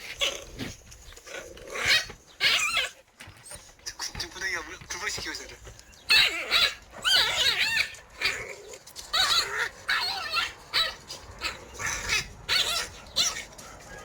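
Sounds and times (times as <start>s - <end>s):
dog yipping and whining: 0.0s - 3.7s, 6.1s - 14.0s.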